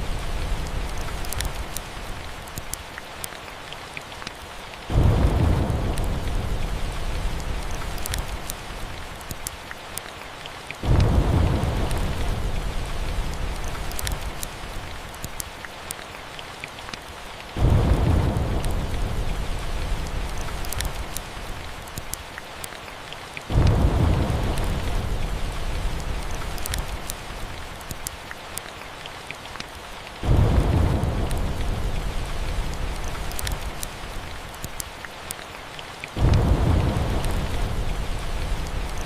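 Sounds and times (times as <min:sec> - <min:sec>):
thunder rumbling: 0:00.0 - 0:02.1, 0:04.9 - 0:09.2, 0:10.8 - 0:15.1, 0:17.5 - 0:21.7, 0:23.5 - 0:27.7, 0:30.2 - 0:34.5, 0:36.2 - 0:39.0
steady rain: 0:00.0 - 0:39.0
wood fire crackling: 0:00.0 - 0:39.0.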